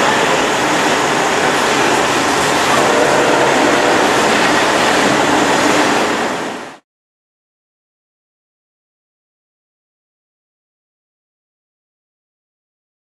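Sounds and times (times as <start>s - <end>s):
train passing on rails: 0.0s - 6.8s.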